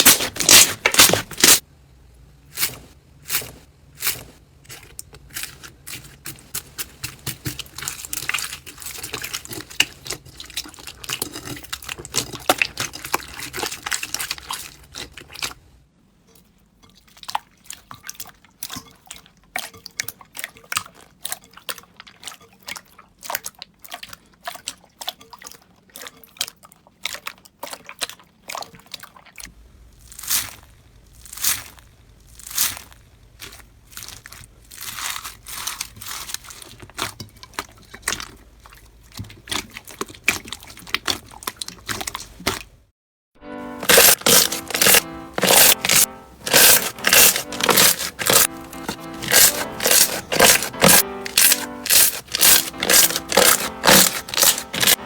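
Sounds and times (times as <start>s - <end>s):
slime squished by hand: 0.0s - 1.6s, 27.0s - 42.8s, 43.8s - 55.0s.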